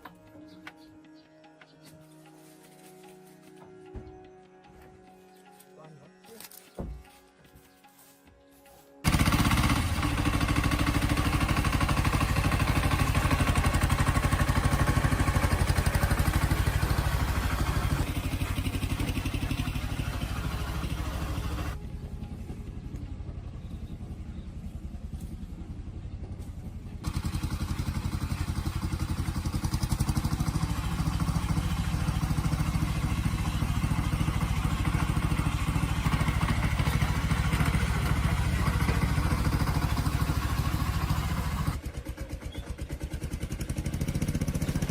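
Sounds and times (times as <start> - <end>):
vehicle engine running: 9.0 - 44.9.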